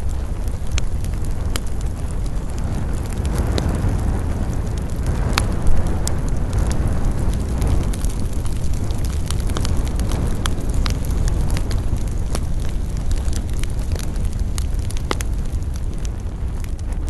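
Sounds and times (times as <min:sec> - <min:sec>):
campfire crackling and popping: 0:00.0 - 0:17.0
low fire rumble: 0:00.0 - 0:17.0
wind in pine trees: 0:00.0 - 0:17.0.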